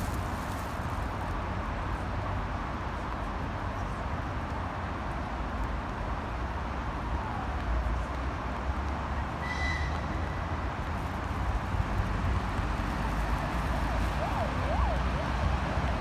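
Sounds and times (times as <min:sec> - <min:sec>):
distant train rumble and hiss: 0:00.0 - 0:16.0
high-pitched train whistle: 0:09.4 - 0:10.0.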